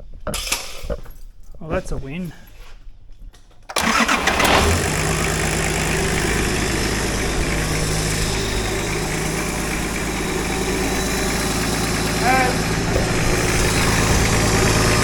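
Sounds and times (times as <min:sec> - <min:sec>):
diesel engine idling: 0:03.8 - 0:15.0.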